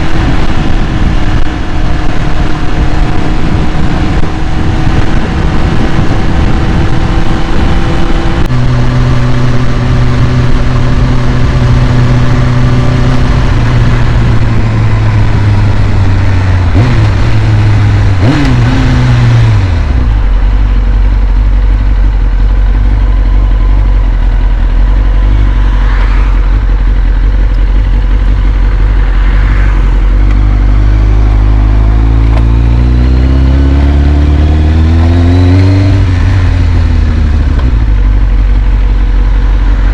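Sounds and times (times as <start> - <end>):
motorcycle engine idling: 19.6 - 32.7, 36.0 - 39.9.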